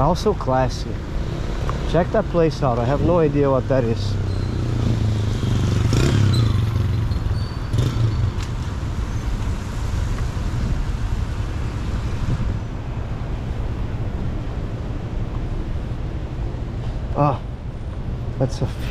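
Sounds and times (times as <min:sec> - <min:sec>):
city street traffic: 0:00.0 - 0:18.9
vehicle passing close: 0:01.0 - 0:13.3.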